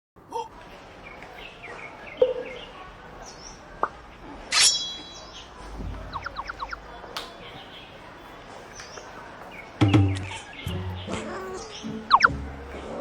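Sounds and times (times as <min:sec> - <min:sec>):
birds chirping and calling: 0:01.0 - 0:13.0.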